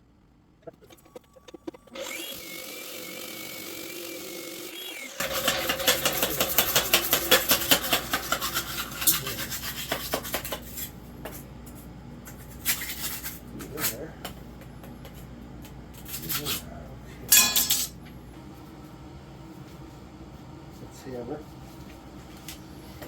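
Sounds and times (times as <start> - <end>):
concrete saw whine: 0.6 - 9.4
saw grinding concrete: 1.0 - 10.5.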